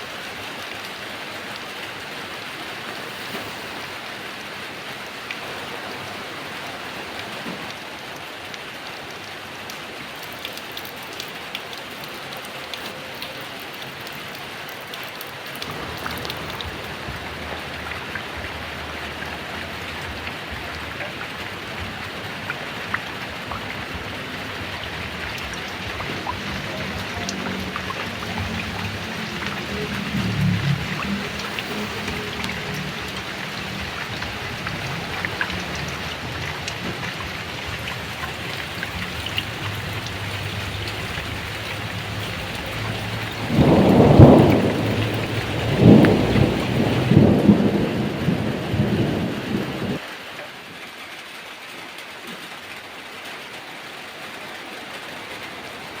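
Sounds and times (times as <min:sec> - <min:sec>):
heavy rain falling: 0:00.0 - 0:56.0
sharp raindrop hits: 0:15.5 - 0:50.0.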